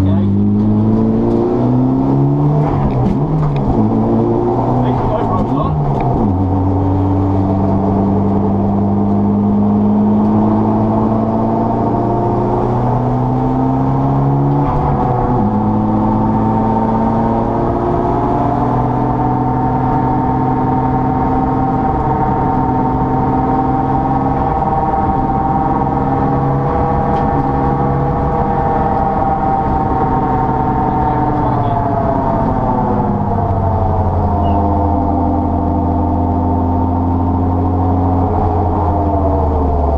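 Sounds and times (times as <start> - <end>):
car engine running hard: 0.0 - 39.9.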